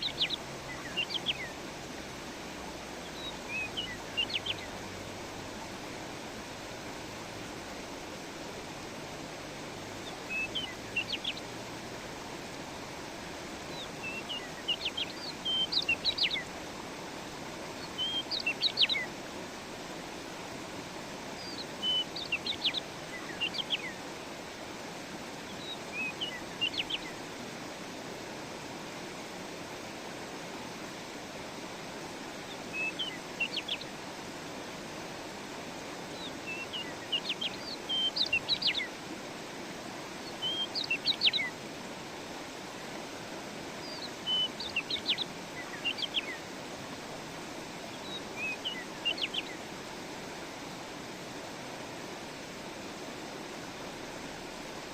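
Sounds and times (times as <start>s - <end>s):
songbird chirping: 0.0s - 1.7s, 2.6s - 5.6s, 9.9s - 11.7s, 13.6s - 19.2s, 20.8s - 24.2s, 25.4s - 27.3s, 32.4s - 34.0s, 36.1s - 39.0s, 40.2s - 41.6s, 43.8s - 46.5s, 47.8s - 50.0s
stream rushing: 0.0s - 54.9s.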